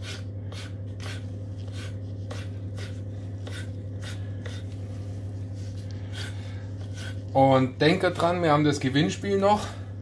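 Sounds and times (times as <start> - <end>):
knife cutting on a board: 0.0 - 4.8, 6.1 - 7.2
steady low hum: 0.0 - 10.0.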